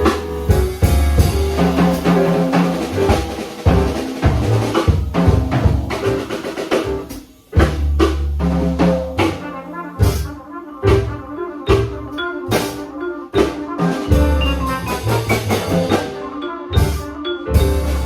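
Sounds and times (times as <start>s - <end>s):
trumpet: 0.0s - 7.2s, 9.1s - 18.0s
bass: 0.0s - 18.0s
drum kit: 0.0s - 18.0s
piano: 0.0s - 18.0s
vibraphone: 11.7s - 18.0s.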